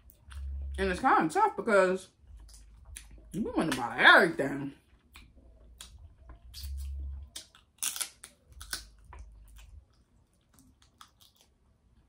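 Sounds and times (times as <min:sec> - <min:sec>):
person chewing with mouth clicks: 0:04.8 - 0:11.6.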